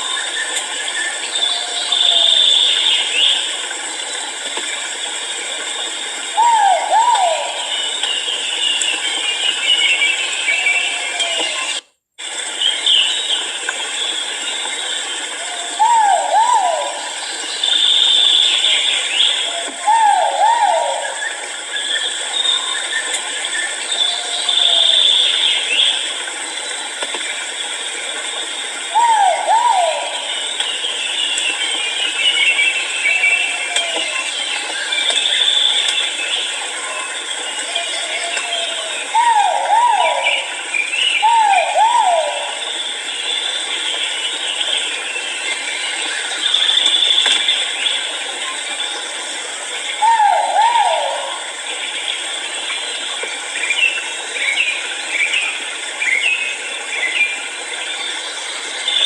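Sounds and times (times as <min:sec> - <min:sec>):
forest insects rattling chorus: 0:00.0 - 0:59.0
pheasant calling: 0:06.3 - 0:08.2, 0:28.9 - 0:30.6
bird calls: 0:06.3 - 0:11.8, 0:15.3 - 0:26.1, 0:28.9 - 0:48.2, 0:49.9 - 0:52.2.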